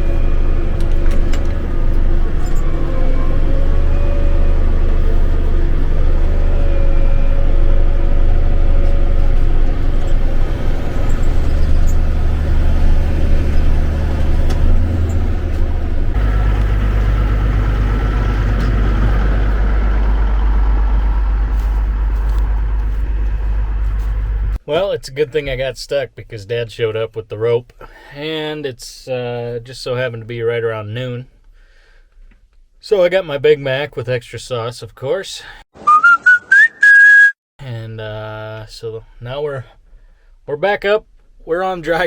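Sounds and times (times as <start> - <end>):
tractor diesel engine running: 0.0 - 24.9.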